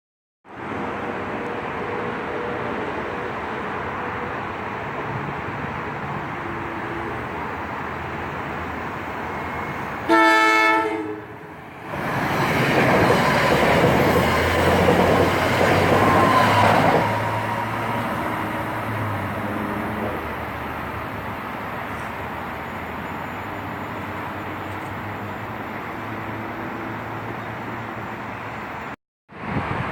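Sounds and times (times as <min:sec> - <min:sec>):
train passing by: 0:00.5 - 0:29.9
train horn blast: 0:10.0 - 0:11.4.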